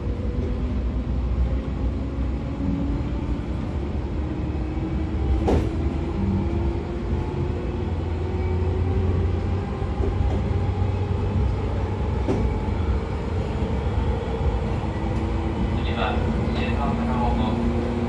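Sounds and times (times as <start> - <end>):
wheels rumbling on rail: 0.0 - 18.0.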